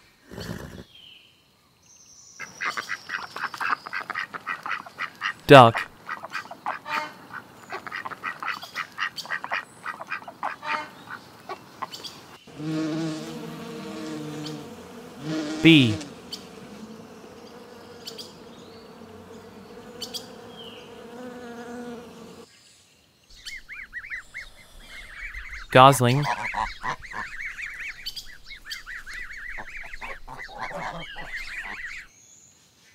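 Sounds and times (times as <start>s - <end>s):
duck quacking: 3.9s - 10.9s, 26.1s - 27.4s, 29.6s - 32.0s
bee buzzing: 12.5s - 22.5s.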